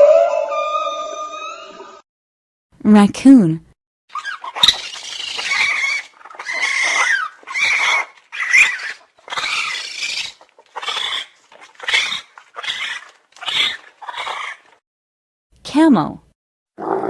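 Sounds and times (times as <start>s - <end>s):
raccoon calling: 4.1s - 14.8s.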